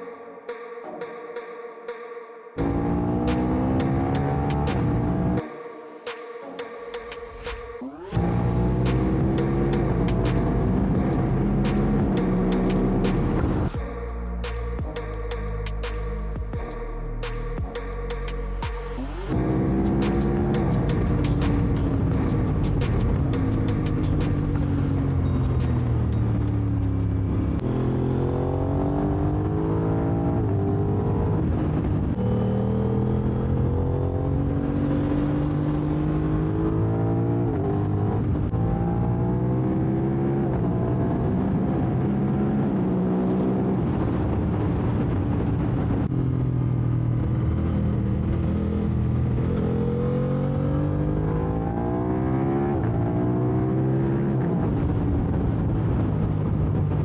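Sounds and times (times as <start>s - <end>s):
motorcycle engine revving hard: 2.6s - 5.4s, 8.2s - 13.8s, 19.3s - 45.1s, 46.2s - 57.0s.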